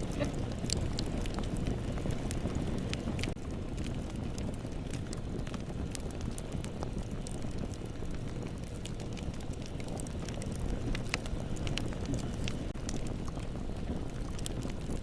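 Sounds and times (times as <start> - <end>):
bonfire rumbling: 0.0 - 15.0
burning wood crackles and pops: 0.0 - 15.0.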